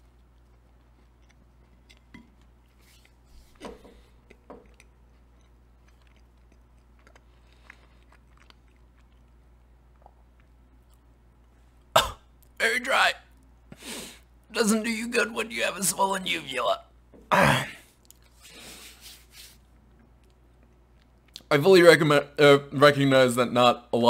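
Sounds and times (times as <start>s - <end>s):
person chewing pastry: 0.0s - 12.6s, 17.9s - 21.5s
pastry crunches: 4.0s - 11.1s.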